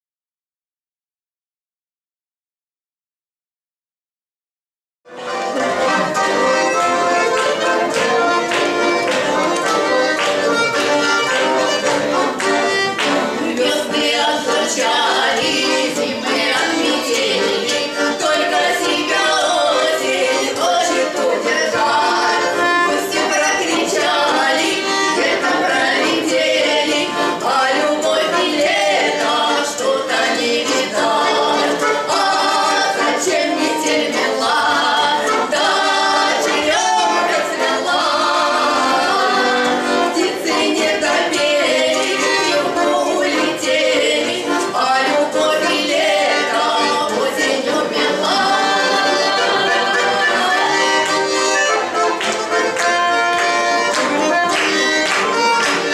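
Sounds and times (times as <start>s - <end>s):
button accordions playing: 5.1s - 55.9s
women singing in duet: 13.4s - 51.0s.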